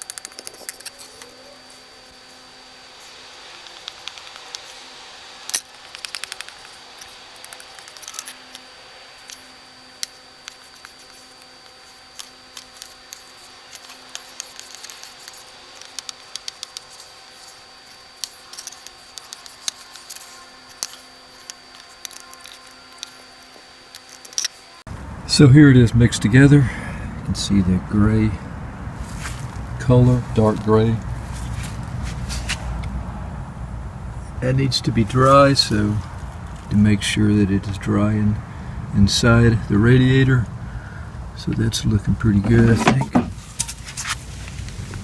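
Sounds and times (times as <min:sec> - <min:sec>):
spatula clicking and scraping: 0:00.0 - 0:04.8, 0:05.4 - 0:24.8
faint steady hum: 0:00.0 - 0:45.0.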